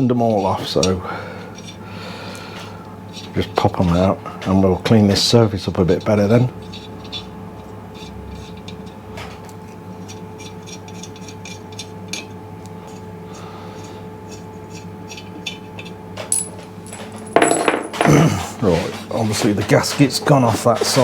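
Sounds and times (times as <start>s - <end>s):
steady hum: 11.8s - 18.6s.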